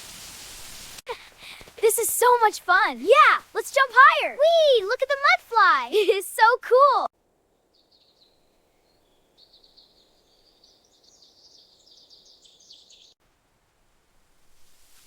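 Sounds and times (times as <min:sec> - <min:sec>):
bird twittering: 0:07.7 - 0:13.2.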